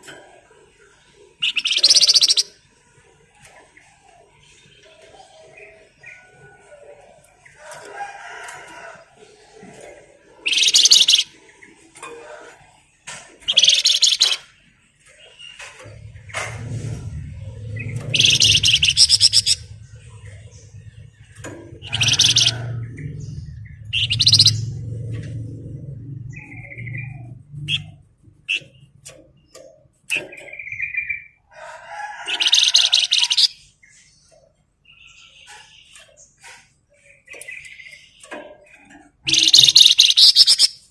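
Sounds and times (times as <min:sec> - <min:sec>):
songbird chirps: 0:00.0 - 0:40.9
sharp bird chips: 0:01.4 - 0:02.5, 0:10.5 - 0:11.3, 0:13.5 - 0:14.5, 0:18.1 - 0:19.6, 0:24.0 - 0:24.6, 0:39.2 - 0:40.9
songbird rattling trills: 0:01.4 - 0:02.6, 0:10.4 - 0:11.3, 0:13.5 - 0:14.5, 0:17.6 - 0:31.3, 0:32.2 - 0:33.6, 0:37.1 - 0:40.9.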